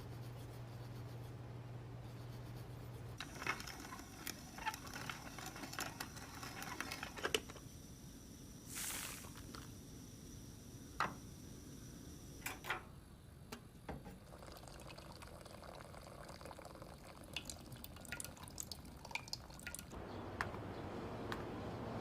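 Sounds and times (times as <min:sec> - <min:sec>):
water running and dripping: 0:14.4 - 0:20.0.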